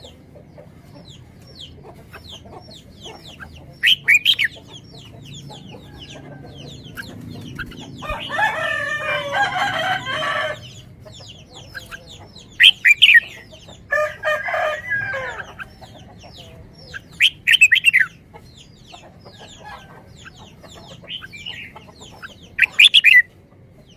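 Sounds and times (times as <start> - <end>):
long bird calls: 0.0 - 23.9
sharp bird chirps: 1.6 - 8.5, 10.6 - 13.8.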